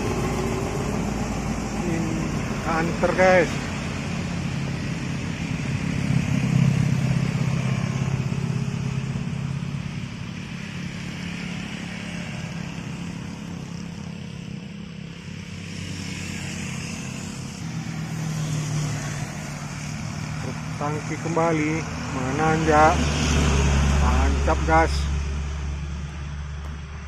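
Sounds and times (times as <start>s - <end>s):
truck engine under load: 0.0s - 10.1s
another engine: 0.0s - 27.0s.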